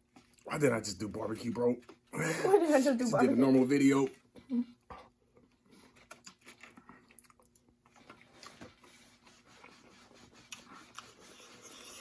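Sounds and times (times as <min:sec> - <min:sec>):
person chewing food: 0:00.0 - 0:00.5, 0:04.1 - 0:12.0.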